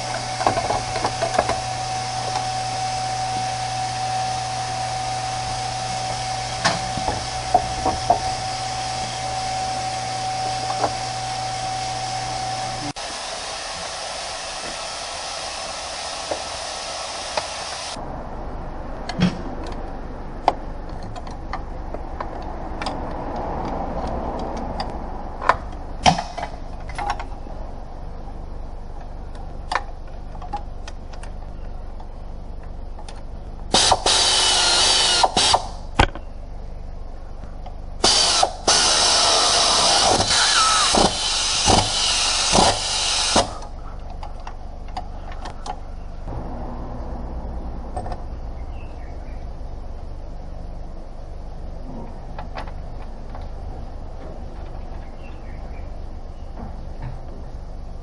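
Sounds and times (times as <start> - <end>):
power tool running: 0.0 - 18.0, 33.7 - 35.8, 38.0 - 43.7.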